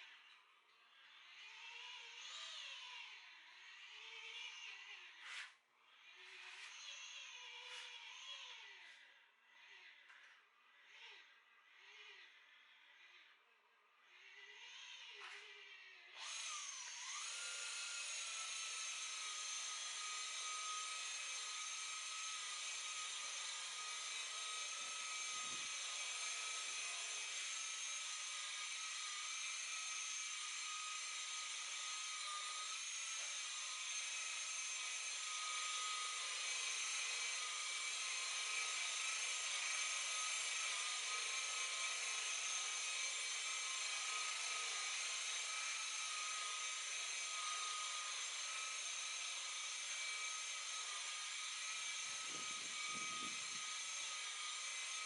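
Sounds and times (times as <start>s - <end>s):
electric buffer whining: 16.2s - 55.0s.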